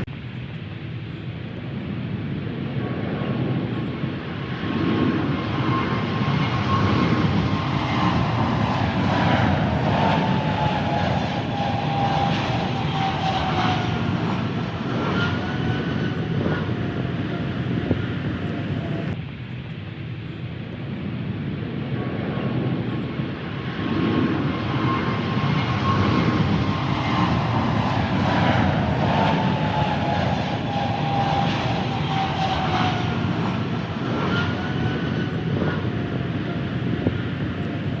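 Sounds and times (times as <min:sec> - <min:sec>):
falling jet engine whine: 0:00.0 - 0:38.0
jet airliner engines rumbling: 0:00.0 - 0:38.0.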